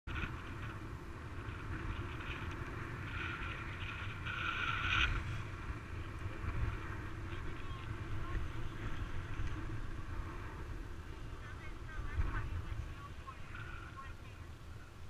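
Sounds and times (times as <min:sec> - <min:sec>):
gondola cabin low rumble: 0:00.1 - 0:15.0
wind hiss: 0:00.1 - 0:15.0.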